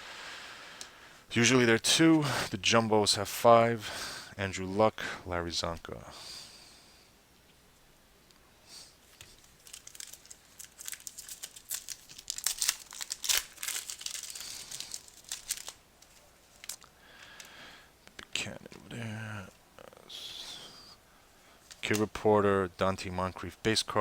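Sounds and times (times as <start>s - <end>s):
wrapper crinkling and tearing: 9.1s - 17.5s.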